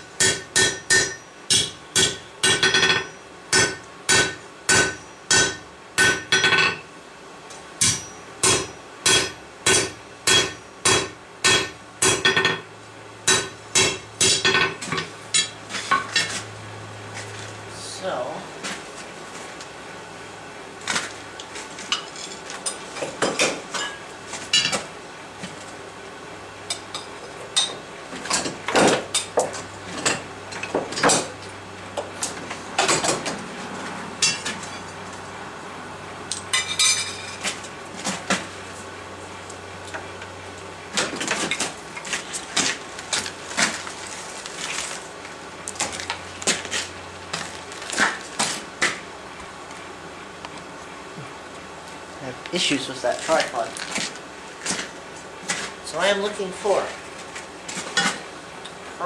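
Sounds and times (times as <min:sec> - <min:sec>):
metal tools clanking: 0:36.4 - 0:37.5.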